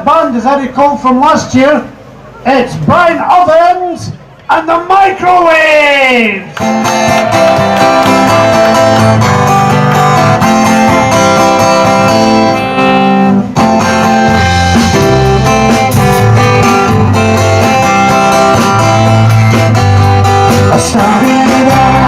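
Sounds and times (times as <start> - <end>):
bass line: 6.1 - 22.0
guitars strumming chords: 6.5 - 22.0
steady drum beat: 13.9 - 22.0.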